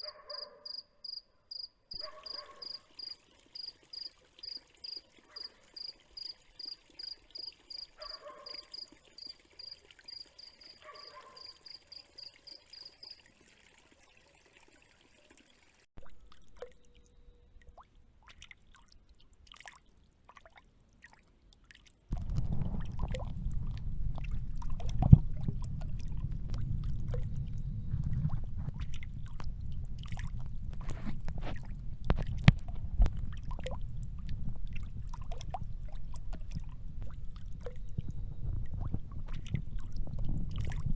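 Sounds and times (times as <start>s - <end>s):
faint water drips: 0.0s - 40.9s
cricket chirping: 0.3s - 13.2s
low dull water sound with splashes: 15.4s - 40.9s.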